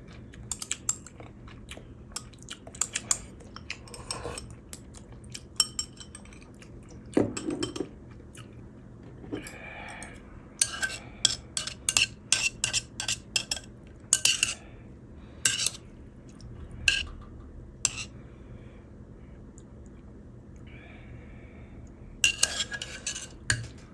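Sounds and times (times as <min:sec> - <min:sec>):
utensils clinking against a bowl: 0:00.3 - 0:01.3, 0:02.1 - 0:08.0, 0:09.3 - 0:14.6, 0:15.4 - 0:15.8, 0:16.9 - 0:17.2, 0:17.8 - 0:18.1, 0:22.2 - 0:23.9.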